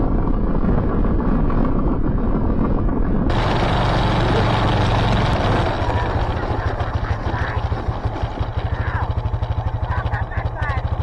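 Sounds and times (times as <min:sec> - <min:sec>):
lawn tractor engine running: 0:03.3 - 0:11.0.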